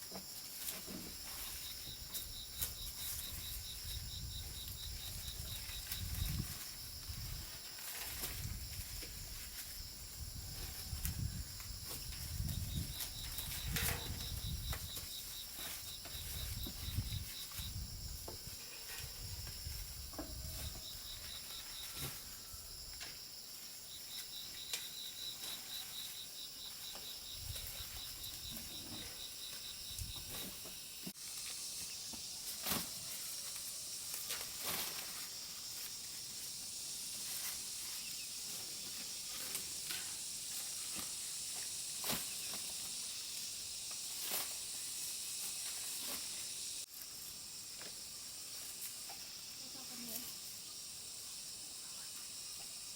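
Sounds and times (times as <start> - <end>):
rustles: 0.0 - 51.2
fast pulsing insect trill: 0.0 - 52.9
insects hissing: 0.0 - 52.9.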